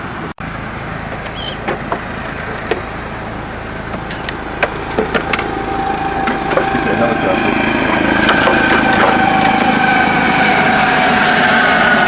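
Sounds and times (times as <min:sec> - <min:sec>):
low engine hum: 0:00.0 - 0:12.0
outdoor rushing noise: 0:00.0 - 0:12.0
short high squeak: 0:01.2 - 0:01.7.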